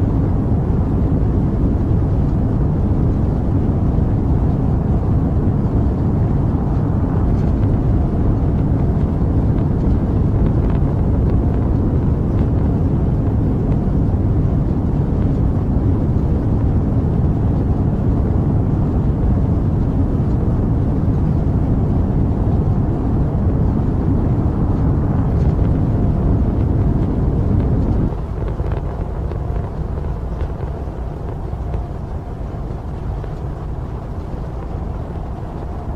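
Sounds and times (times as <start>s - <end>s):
rocket engine rumble: 0.0s - 35.9s.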